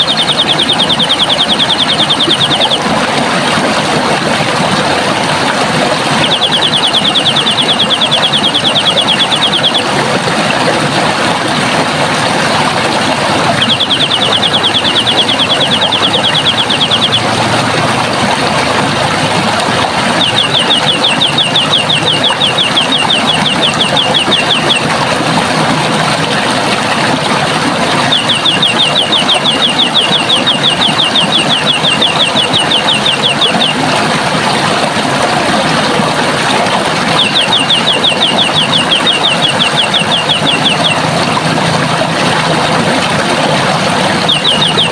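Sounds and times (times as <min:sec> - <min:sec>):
bird trilling: 0:00.0 - 0:02.8, 0:06.2 - 0:09.9, 0:13.5 - 0:17.3, 0:20.1 - 0:24.9, 0:28.0 - 0:33.8, 0:37.2 - 0:41.1, 0:44.2 - 0:44.9
running water rushing: 0:00.0 - 0:44.9.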